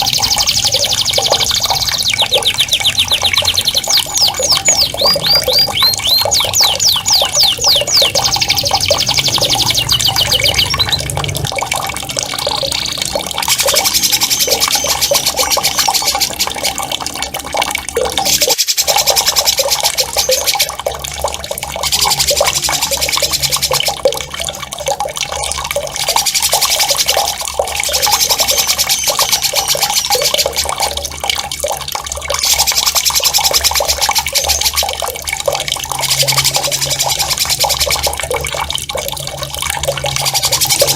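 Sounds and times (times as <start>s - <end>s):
songbird fast rolling trills: 0.0s - 11.1s
running gurgling water: 0.0s - 40.9s.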